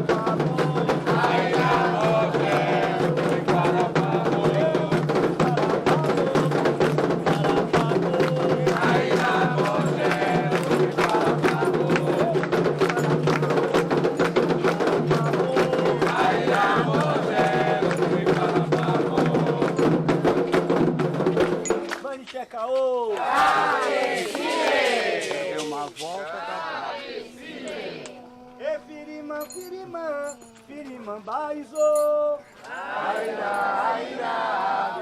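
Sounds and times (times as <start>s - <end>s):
group singing a chant: 0.0s - 20.3s, 23.1s - 29.3s, 32.6s - 35.0s
hand drums and percussion: 0.0s - 22.2s, 23.2s - 26.3s.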